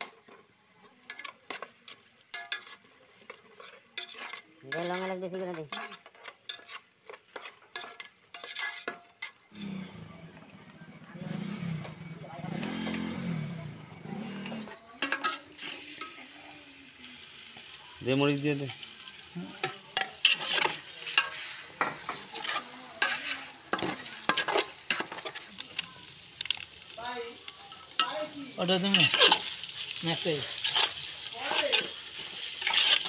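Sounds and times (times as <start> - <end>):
onions sizzling in a pot: 0.0 - 33.0.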